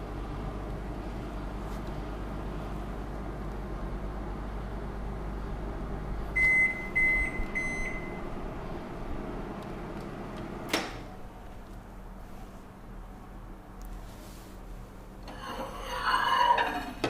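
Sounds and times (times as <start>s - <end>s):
microwave oven humming: 0.0s - 15.5s
microwave beeps: 6.3s - 8.3s.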